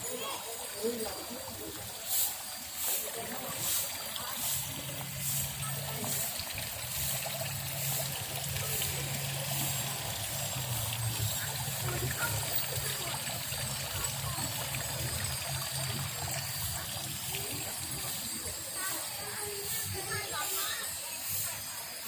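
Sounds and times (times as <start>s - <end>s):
water trickling: 0.0s - 22.0s.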